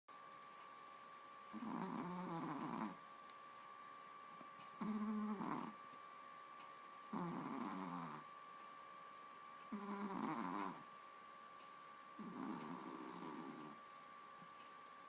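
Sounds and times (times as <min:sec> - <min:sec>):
dog snoring: 0:01.5 - 0:03.0, 0:04.6 - 0:05.8, 0:07.0 - 0:08.3, 0:09.7 - 0:10.9, 0:12.2 - 0:13.8.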